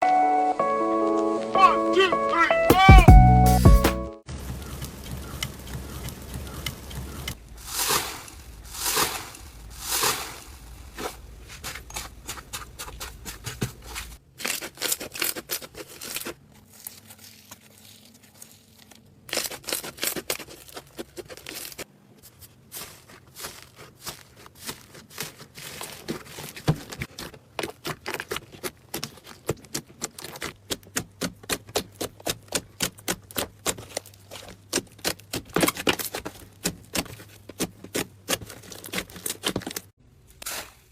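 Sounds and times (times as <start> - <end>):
slime squishing: 7.7 - 39.9.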